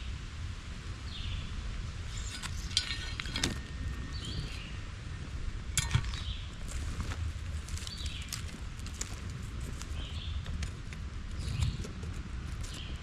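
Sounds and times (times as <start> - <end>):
dry kindling crackling: 1.8 - 13.0
bird chirping: 2.1 - 4.9, 11.3 - 11.9.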